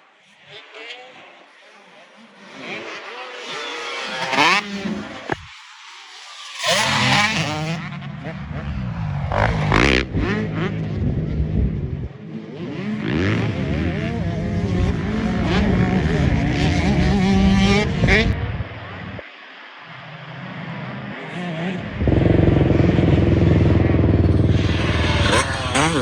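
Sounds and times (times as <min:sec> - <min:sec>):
off-road engines revving: 0:06.6 - 0:18.4, 0:21.4 - 0:26.0.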